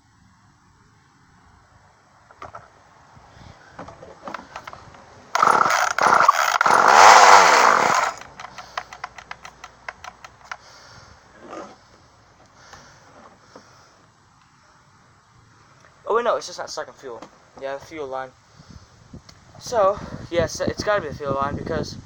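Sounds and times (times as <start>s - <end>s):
chainsaw engine turning over: 4.3s - 10.6s
chainsaw starter cord pulls: 4.3s - 10.6s
clicking from handling saw: 4.3s - 10.6s.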